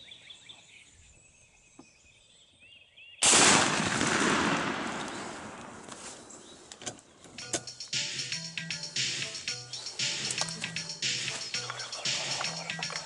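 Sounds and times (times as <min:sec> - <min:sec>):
loud gunshot: 0:03.2 - 0:05.6.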